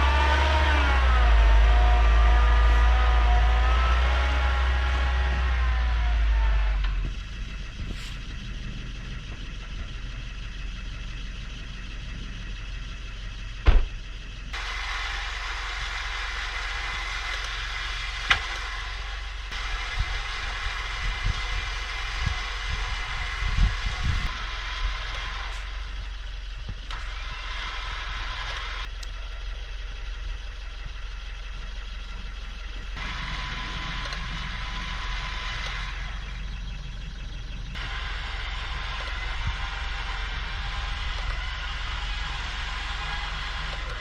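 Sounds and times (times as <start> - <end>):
vehicle engine droning: 0.0 - 44.0.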